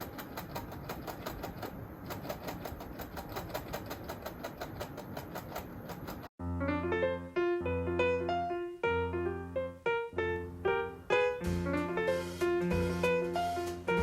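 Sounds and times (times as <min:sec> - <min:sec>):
piano music: 0:06.4 - 0:14.0.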